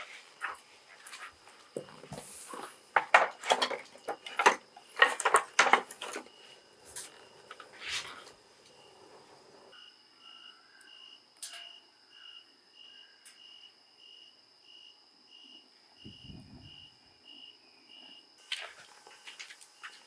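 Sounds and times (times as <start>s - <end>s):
crickets chirping: 0.0s - 20.0s
fire clicks: 3.6s - 9.7s.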